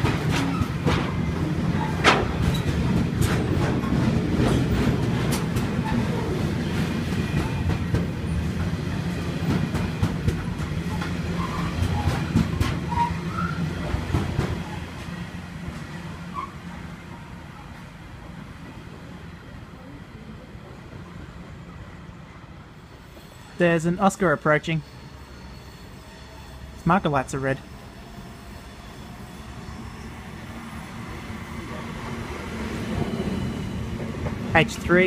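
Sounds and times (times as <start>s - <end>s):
train wagons rumbling on rails: 0.0s - 21.7s, 22.4s - 35.0s
wheel squeals: 10.8s - 13.9s.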